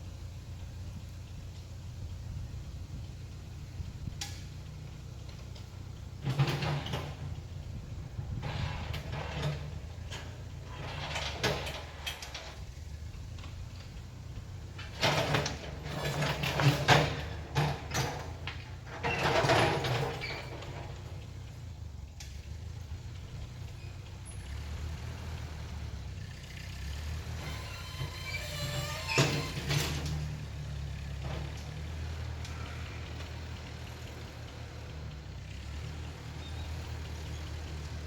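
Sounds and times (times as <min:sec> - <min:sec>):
tractor engine running: 0:00.0 - 0:38.0
clanking and knocking: 0:05.4 - 0:12.8, 0:13.4 - 0:21.7, 0:27.1 - 0:32.7.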